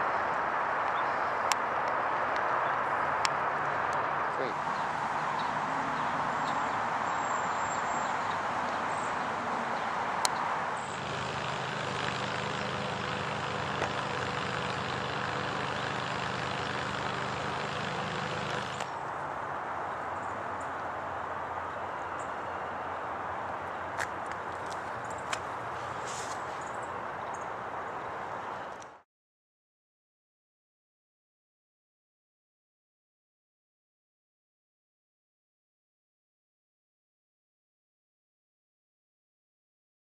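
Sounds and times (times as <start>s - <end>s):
road traffic noise: 0.0s - 29.0s
vehicle engine humming low: 0.2s - 29.0s.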